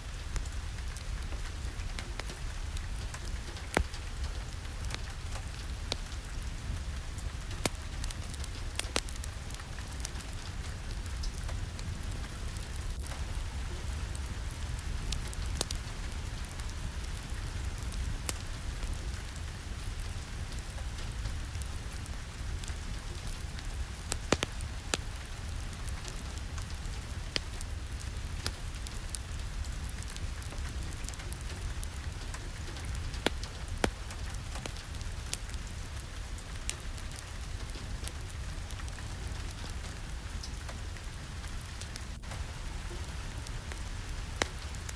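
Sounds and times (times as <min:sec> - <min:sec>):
steady rain: 0:00.0 - 0:44.9
wood fire crackling: 0:00.0 - 0:44.9.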